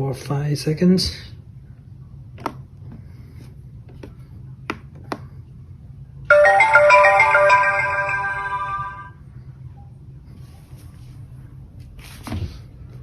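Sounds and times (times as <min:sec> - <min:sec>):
robot vacuum power-on chime: 0:06.3 - 0:09.1.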